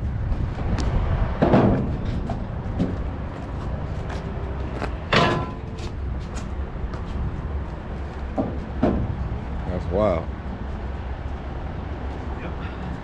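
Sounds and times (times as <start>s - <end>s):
sharp metal clunk: 5.1s - 5.8s.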